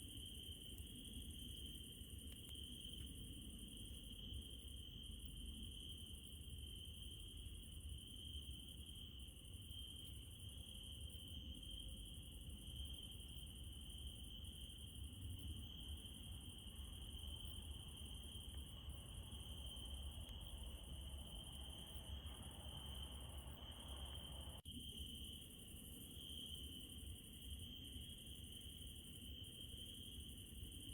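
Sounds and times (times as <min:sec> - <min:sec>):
crickets chirring: 0:00.0 - 0:30.9
higher insect trill: 0:15.6 - 0:26.5.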